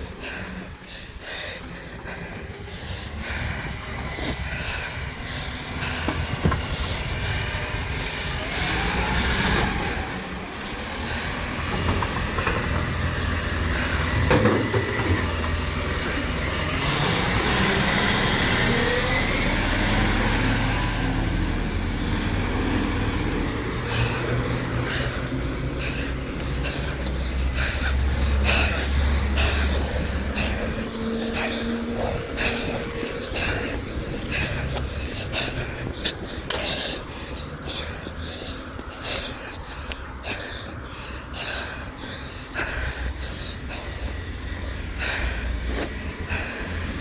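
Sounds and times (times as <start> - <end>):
truck engine running under load: 0.0 - 47.0
rising whine: 3.0 - 36.3
hydraulic lifting arm working: 4.6 - 33.5.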